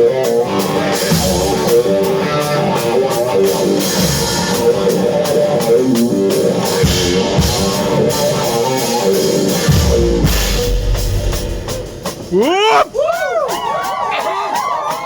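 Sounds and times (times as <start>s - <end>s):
electric guitar: 0.0s - 12.3s
drum kit: 0.0s - 15.0s
heavy kick drum hits: 9.7s - 12.4s.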